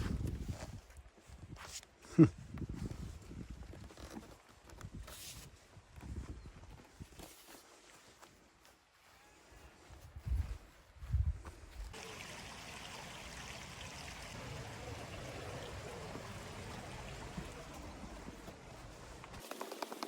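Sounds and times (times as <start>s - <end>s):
river water rushing: 12.0s - 18.5s.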